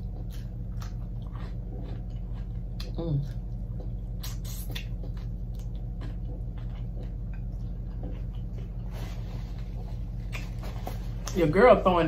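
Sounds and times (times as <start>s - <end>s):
chewing crispy chicken: 0.0s - 11.4s
steady low hum: 0.0s - 12.0s
wet mouth clicks: 4.2s - 5.0s.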